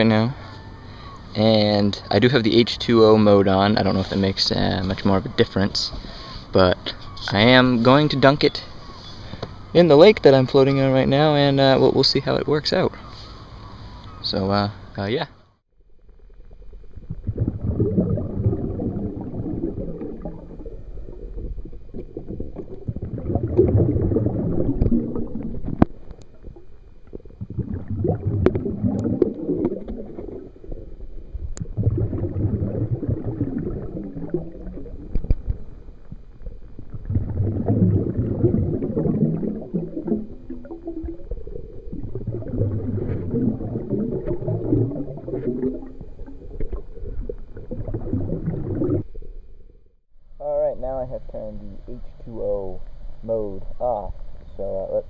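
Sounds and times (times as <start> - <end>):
muffled underwater water sloshing: 16.0 - 50.0.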